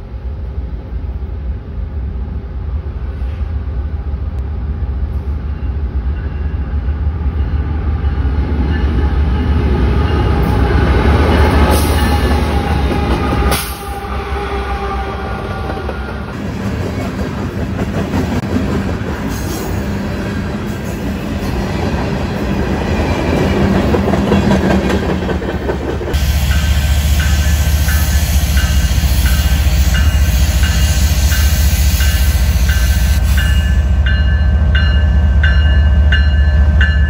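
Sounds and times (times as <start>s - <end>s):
train wheels rolling and clattering: 15.6s - 34.9s.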